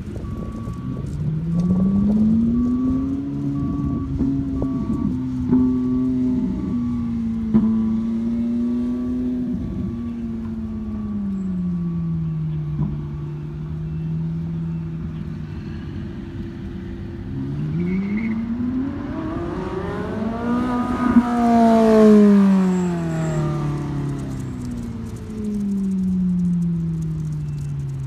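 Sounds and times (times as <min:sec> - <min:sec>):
sports car engine accelerating: 0:00.0 - 0:28.0.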